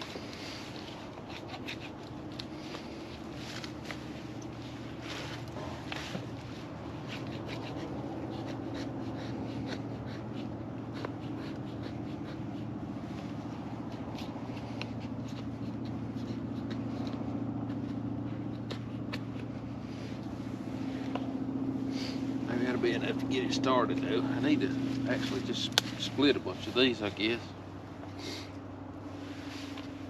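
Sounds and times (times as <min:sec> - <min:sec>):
knife scraping wood: 0:00.0 - 0:04.1, 0:04.8 - 0:12.7, 0:13.8 - 0:20.2
steady low hum: 0:00.0 - 0:30.0.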